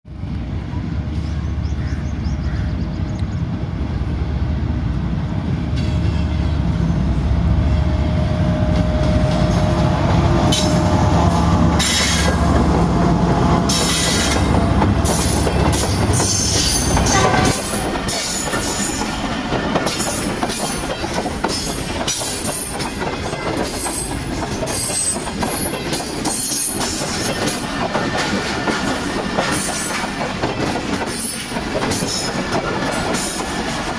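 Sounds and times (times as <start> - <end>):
diesel locomotive engine rumble: 0.1 - 33.9
train wheels clattering: 8.5 - 33.9.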